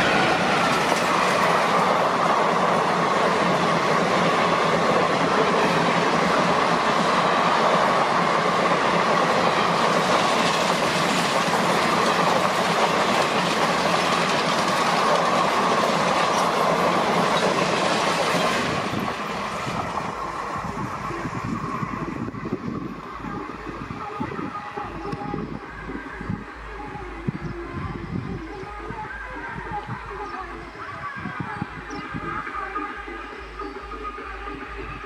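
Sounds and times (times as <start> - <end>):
train wheels on rails clattering: 0.0 - 20.3.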